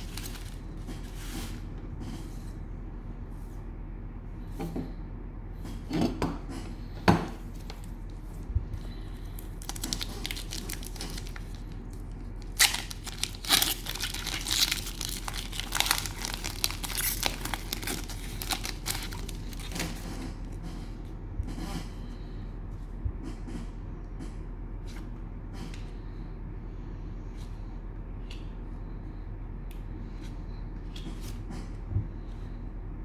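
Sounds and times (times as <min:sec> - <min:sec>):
cellophane wrapper crinkling: 0:00.0 - 0:00.7, 0:09.3 - 0:20.5.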